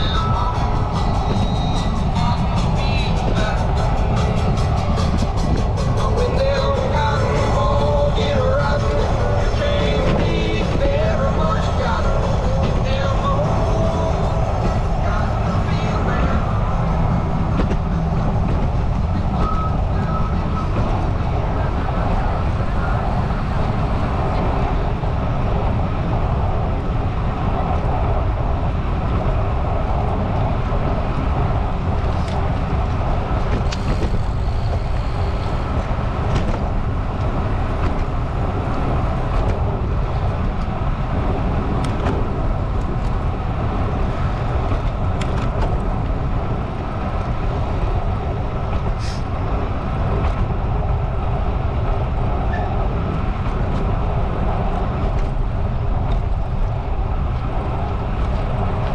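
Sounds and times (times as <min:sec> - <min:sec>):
bicycle road noise: 0:00.0 - 0:58.9
wind buffeting microphone: 0:00.0 - 0:58.9.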